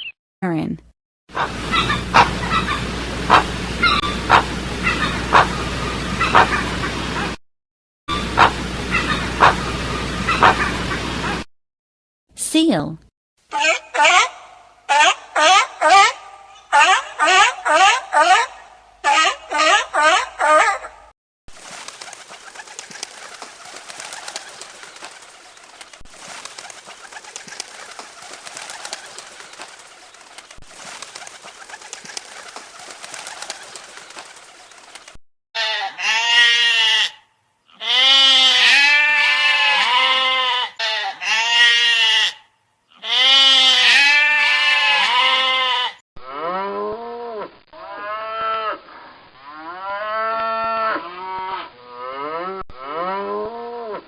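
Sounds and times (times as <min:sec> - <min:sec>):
lower repeated calls: 0:01.4 - 0:05.6, 0:08.1 - 0:10.8
loud bleating calls: 0:35.6 - 0:46.0.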